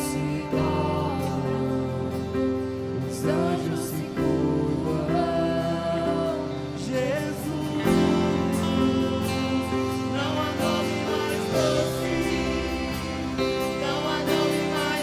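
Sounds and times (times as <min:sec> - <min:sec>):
band playing sustained chords: 0:00.0 - 0:15.0.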